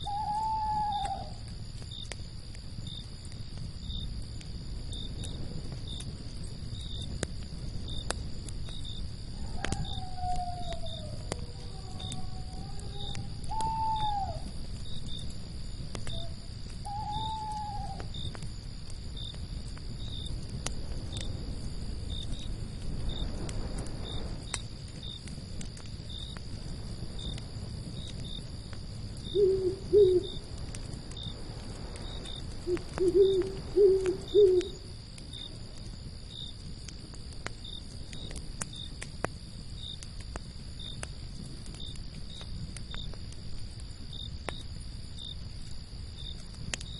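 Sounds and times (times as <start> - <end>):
owl hooting: 0.0 - 1.4, 9.5 - 14.5, 16.1 - 18.1, 29.3 - 30.4, 32.6 - 34.9
campfire crackling and popping: 0.0 - 46.9
crickets chirping: 0.0 - 46.9
low rumble of wind: 0.0 - 46.9.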